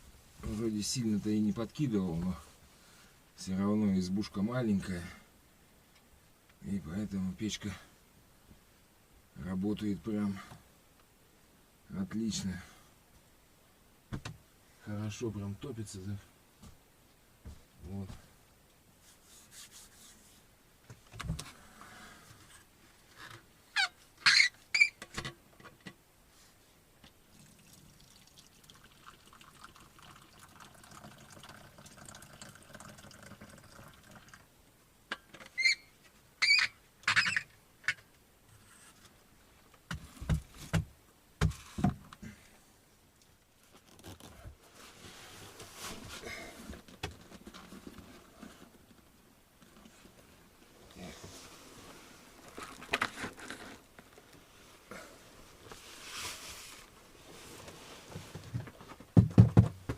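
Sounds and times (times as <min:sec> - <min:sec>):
soft rustling: 0:19.0 - 0:23.4, 0:43.5 - 0:59.1
dull knocks: 0:59.1 - 0:59.9.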